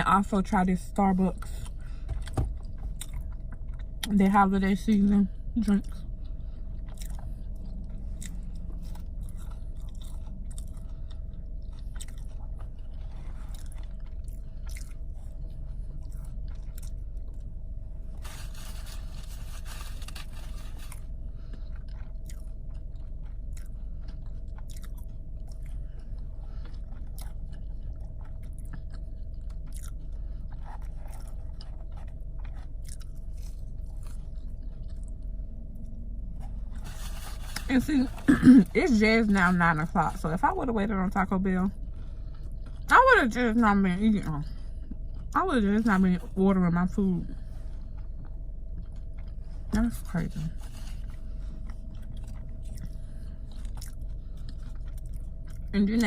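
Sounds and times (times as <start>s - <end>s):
steady low hum: 0.0s - 56.0s
chewing crunchy food: 0.2s - 40.5s, 41.2s - 43.4s, 44.2s - 56.0s.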